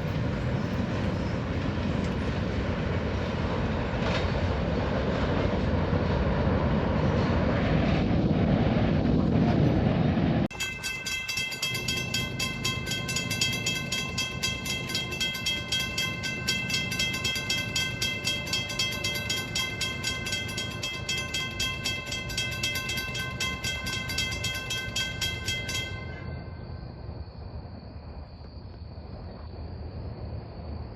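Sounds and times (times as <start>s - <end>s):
low rumble: 0.0s - 10.5s
railroad crossing bell ringing: 10.5s - 27.2s.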